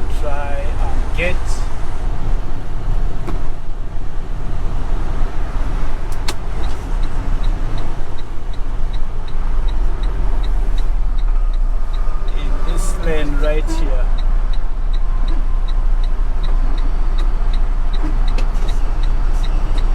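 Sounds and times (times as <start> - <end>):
truck diesel engine rumbling: 0.0 - 19.9
turn signal ticking: 0.0 - 19.9.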